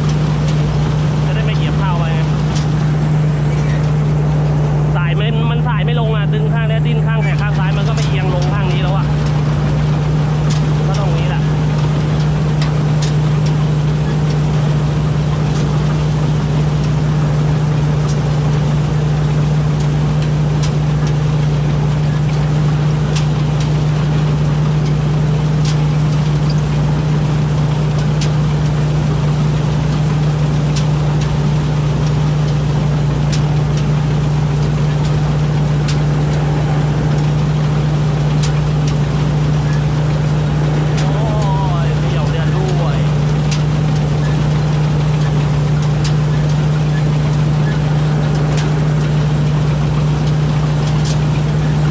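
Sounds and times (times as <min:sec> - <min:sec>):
combine harvester engine humming: 0:00.0 - 0:51.9.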